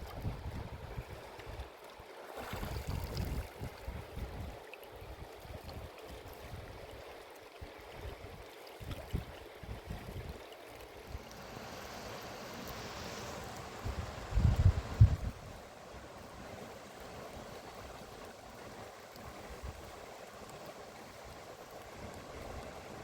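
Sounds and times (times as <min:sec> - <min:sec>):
wind buffeting microphone: 0:00.0 - 0:01.6, 0:02.6 - 0:04.6, 0:13.8 - 0:15.6
river water rushing: 0:10.8 - 0:23.0.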